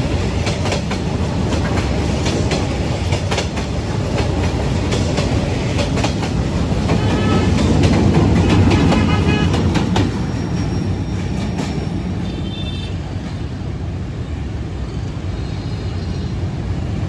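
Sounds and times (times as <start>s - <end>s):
train passing with low rumble: 0.0s - 17.0s.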